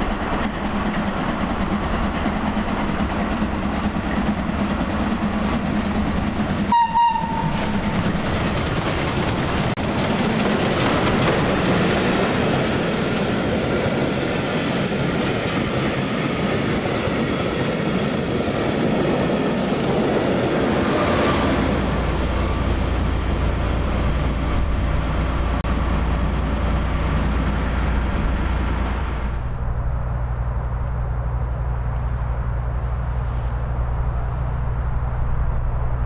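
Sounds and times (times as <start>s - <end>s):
train wheels clattering over rail joints: 0.0s - 21.0s
diesel locomotive low drone: 0.0s - 36.0s.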